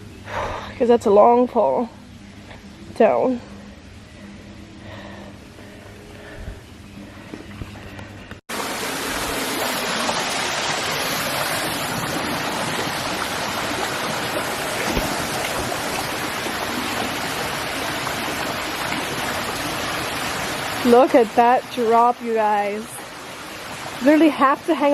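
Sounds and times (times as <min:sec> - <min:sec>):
waterfall rushing: 0:08.5 - 0:21.4.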